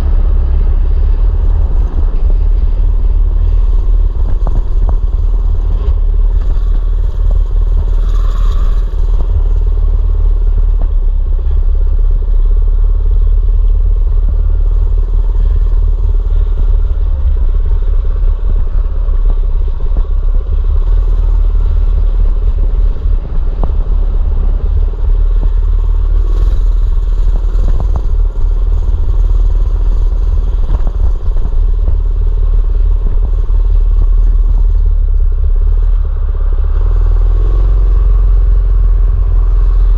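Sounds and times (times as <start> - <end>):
small engine running: 0.0 - 10.8
clatters and rattles: 0.0 - 11.9, 13.5 - 38.1
heavy low rumble: 0.0 - 39.9.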